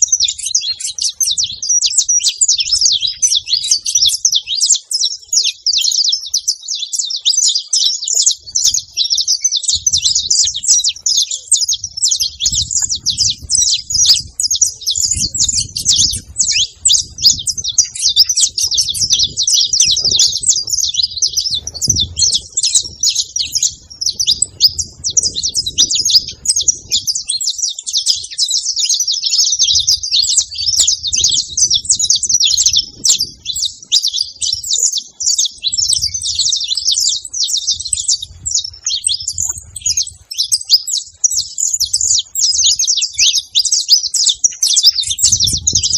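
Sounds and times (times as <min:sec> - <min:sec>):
finches chirping and singing: 0:00.0 - 0:45.9.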